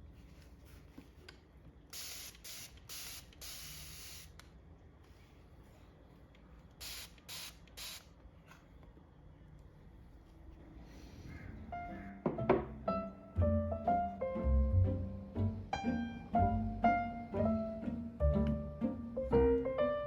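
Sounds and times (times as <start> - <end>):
spray bottle spritzing: 2.0 - 4.4, 6.8 - 8.1.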